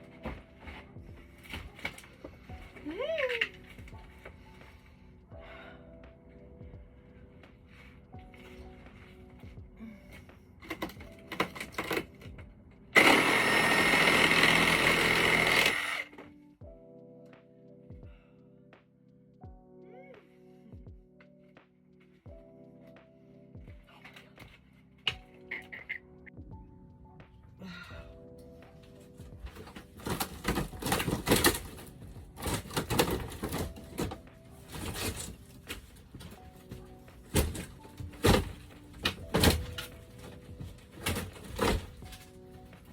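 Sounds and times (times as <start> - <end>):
power tool whining: 13.0 - 16.2.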